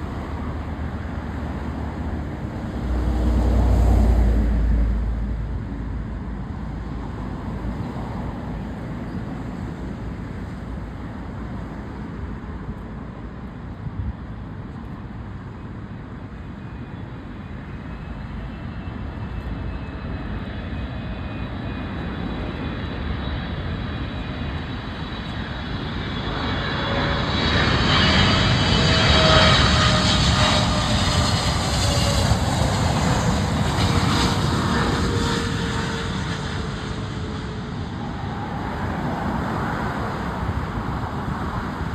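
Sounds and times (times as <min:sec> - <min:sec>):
jet engines rumbling: 0:00.0 - 0:12.1, 0:20.0 - 0:41.9.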